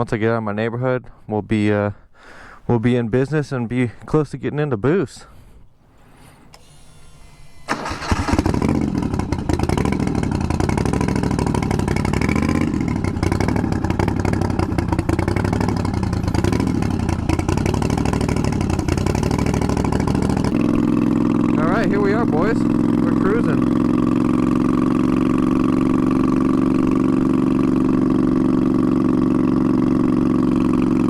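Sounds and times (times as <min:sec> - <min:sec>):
motorcycle engine revving: 0:07.6 - 0:31.0.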